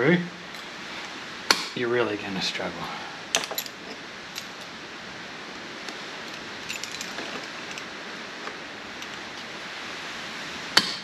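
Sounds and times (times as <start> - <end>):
steady background hiss: 0.0 - 11.0
metal chain clinks: 3.4 - 4.8, 6.2 - 8.0.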